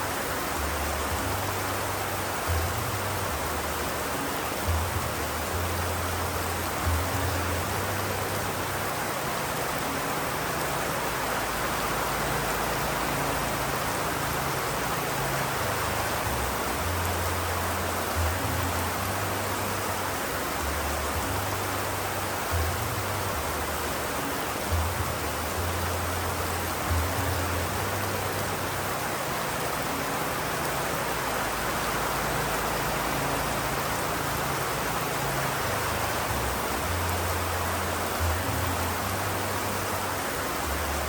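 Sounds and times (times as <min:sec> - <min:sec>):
heavy rain hissing: 0:00.0 - 0:41.0.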